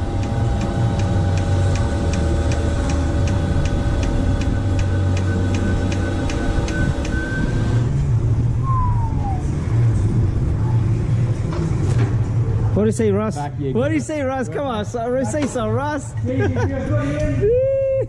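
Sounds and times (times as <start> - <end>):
polishing machine humming and ticking: 0.0 - 7.5
low background hum: 0.0 - 18.0
short falling squeal: 8.6 - 9.6.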